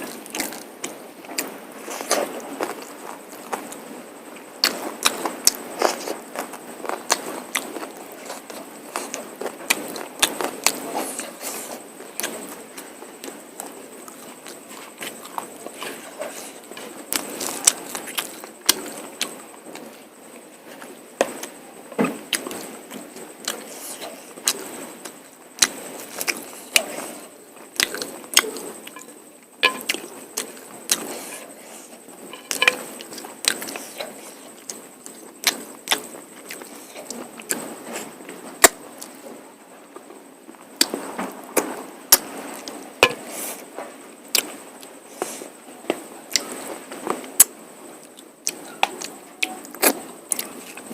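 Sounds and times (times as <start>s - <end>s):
chewing with wet mouth smacks: 0.2s - 19.9s, 25.6s - 37.7s.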